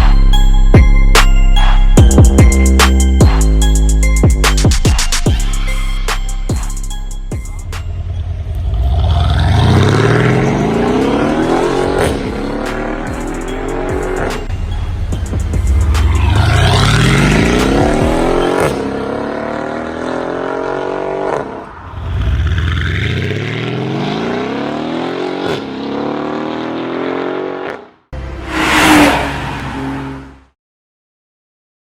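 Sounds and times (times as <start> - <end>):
car engine accelerating hard: 8.1 - 14.4, 15.4 - 30.5.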